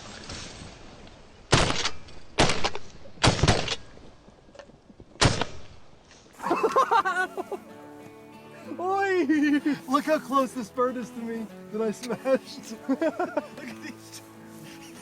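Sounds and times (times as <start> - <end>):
shotgun blasts with echo: 5.2 - 5.8.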